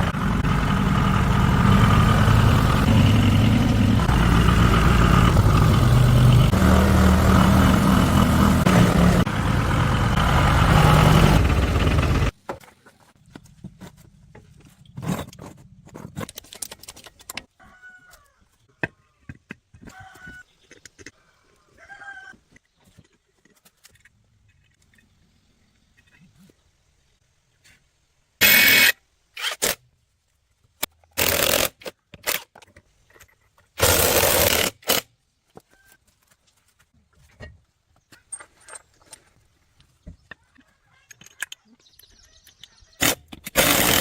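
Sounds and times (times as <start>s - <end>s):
tractor engine running: 0.0s - 12.4s.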